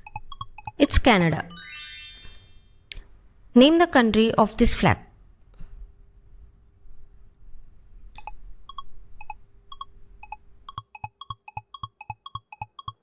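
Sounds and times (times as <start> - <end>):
countdown timer ticks: 0.0 - 1.6, 8.2 - 13.0.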